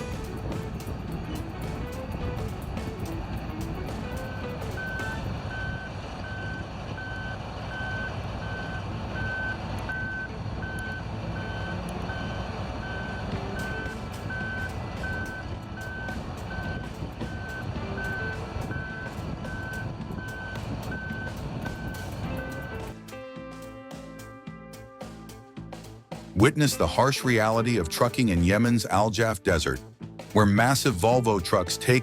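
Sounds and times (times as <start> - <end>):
diesel engine rumble: 0.0 - 26.6
reversing alarm beeping: 3.9 - 22.9.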